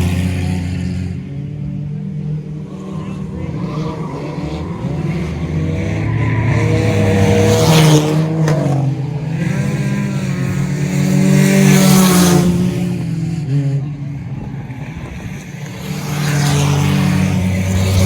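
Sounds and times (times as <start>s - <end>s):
race car engines passing: 0.0s - 18.0s.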